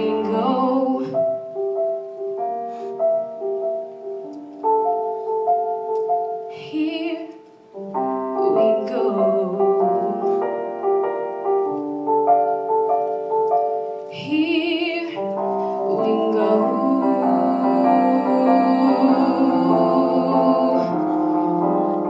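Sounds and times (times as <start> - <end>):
woman singing with vibrato: 0.0 - 1.3, 6.5 - 7.5, 8.3 - 10.4, 14.1 - 21.2
piano chords: 0.0 - 22.0.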